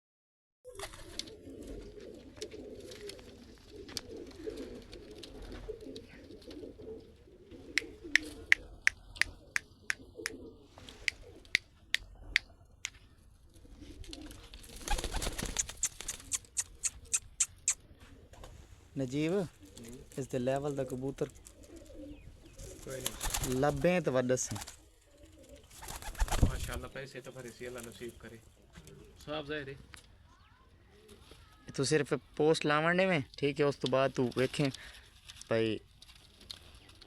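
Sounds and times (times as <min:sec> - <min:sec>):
pigeons cooing: 0:00.7 - 0:26.9
sharp clicks: 0:15.3 - 0:17.8.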